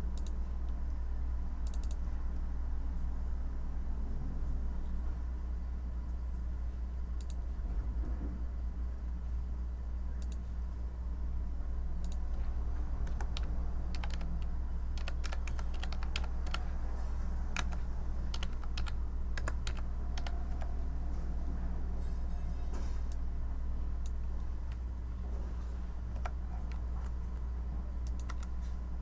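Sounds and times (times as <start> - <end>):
steady low hum: 0.0 - 29.0
typing on a keyboard: 12.0 - 16.8, 17.5 - 20.7, 26.1 - 27.4, 28.0 - 28.7.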